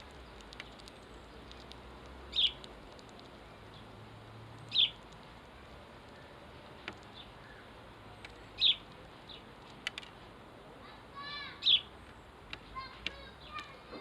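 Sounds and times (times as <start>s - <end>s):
sharp clicks: 0.0s - 3.4s, 9.6s - 10.2s
sparrows chirping: 0.0s - 14.0s.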